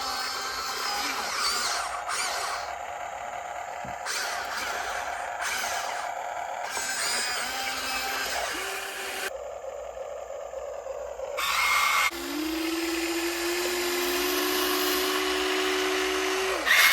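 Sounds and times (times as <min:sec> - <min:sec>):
electric motor and hydraulics whining: 0:00.0 - 0:16.9.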